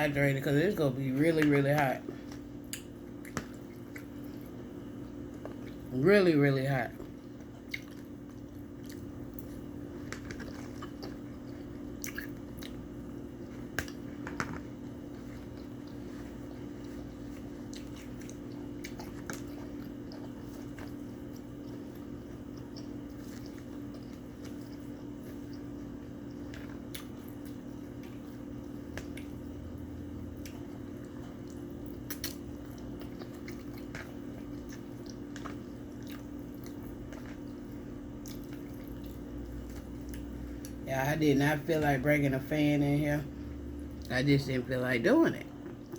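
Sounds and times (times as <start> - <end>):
steady low hum: 0.0 - 45.9
person chewing: 0.8 - 5.9, 7.0 - 40.8, 45.5 - 45.9.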